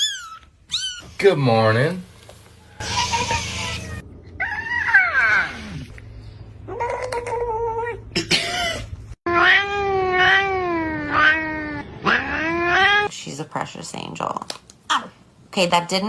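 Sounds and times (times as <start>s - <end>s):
cats meowing and yowling: 0.0s - 1.2s, 2.8s - 6.0s, 9.3s - 13.1s.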